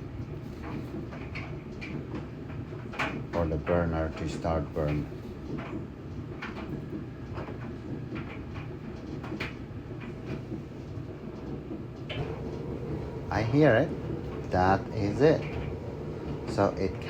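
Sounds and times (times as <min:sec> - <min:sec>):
dryer drum knocking: 0:11.4 - 0:17.0
dryer motor humming: 0:11.9 - 0:17.0
gas burner lighting: 0:12.1 - 0:17.0.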